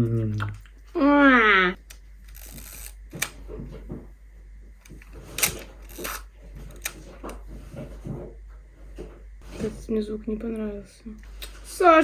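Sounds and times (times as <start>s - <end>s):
film advance scraping: 2.3s - 3.3s.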